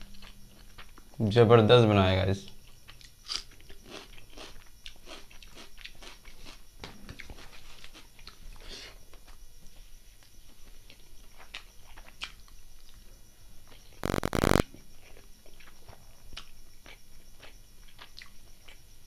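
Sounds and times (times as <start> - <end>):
chewing and wet mouth clicks: 10.9 - 13.0, 14.6 - 18.8.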